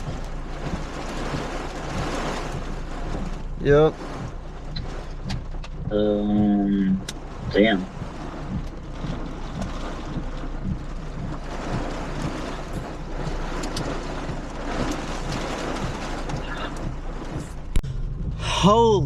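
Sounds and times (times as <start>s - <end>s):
low engine hum: 0.0s - 19.0s
rain on car roof: 0.0s - 19.0s.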